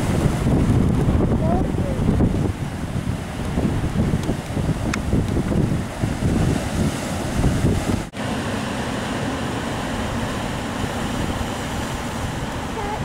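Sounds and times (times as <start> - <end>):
wind buffeting microphone: 0.0 - 8.2
rushing water: 0.0 - 13.0.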